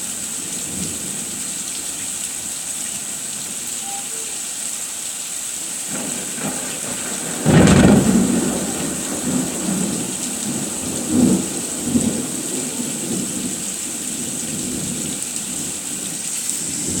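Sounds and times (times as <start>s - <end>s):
heavy rain pouring: 0.0s - 17.0s
thunder rumbling: 5.8s - 16.1s.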